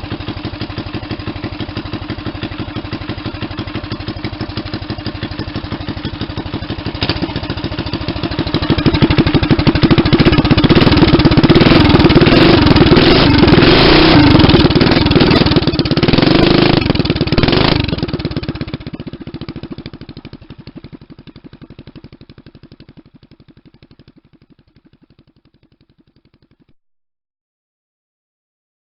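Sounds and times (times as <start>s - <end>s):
mini-bike engine revving: 0.0s - 19.9s.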